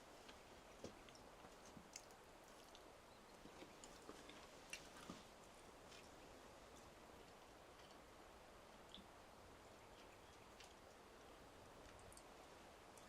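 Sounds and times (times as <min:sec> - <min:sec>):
small clicks and ticks: 0:09.9 - 0:12.3.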